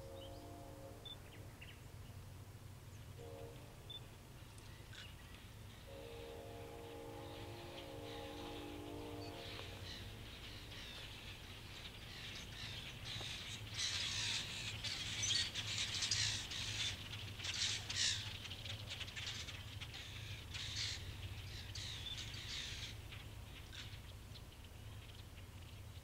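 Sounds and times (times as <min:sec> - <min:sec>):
faint low steady hum: 0:00.0 - 0:26.0
birds making harsh calls: 0:07.2 - 0:23.0.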